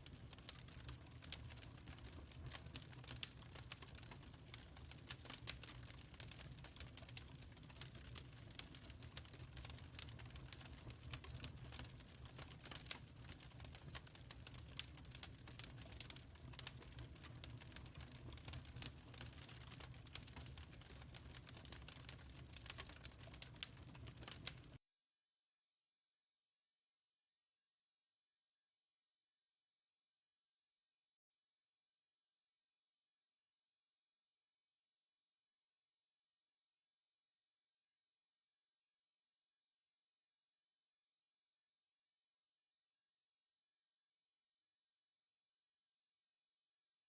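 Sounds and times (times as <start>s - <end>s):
wood fire crackling: 0.0s - 24.8s.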